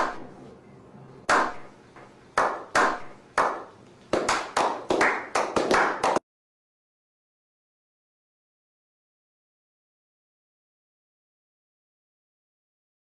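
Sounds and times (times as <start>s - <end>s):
person clapping with echo: 2.4s - 6.2s.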